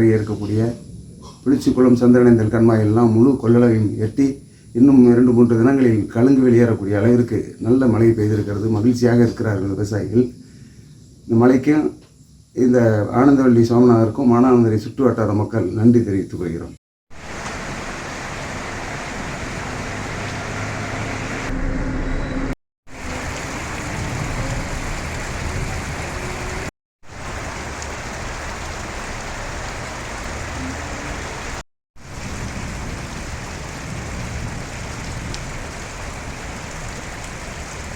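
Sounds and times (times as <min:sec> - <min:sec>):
heavy rain pouring: 0:17.1 - 0:21.6, 0:22.9 - 0:37.9.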